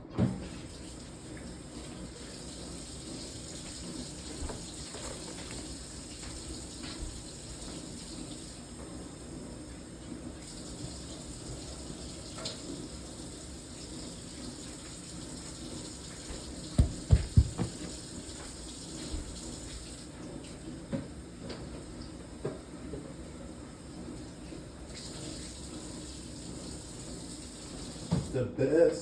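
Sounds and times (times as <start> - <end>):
tap running into sink: 3.5 - 7.9, 15.4 - 21.8, 28.0 - 28.3
deep thumps: 16.8 - 17.9
light knocks: 16.8 - 17.9.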